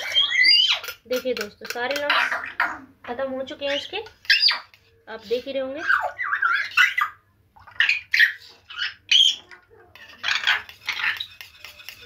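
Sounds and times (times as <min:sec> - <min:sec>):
pet birds calling: 0:00.0 - 0:01.0, 0:01.9 - 0:02.9, 0:03.6 - 0:04.8, 0:05.8 - 0:11.6.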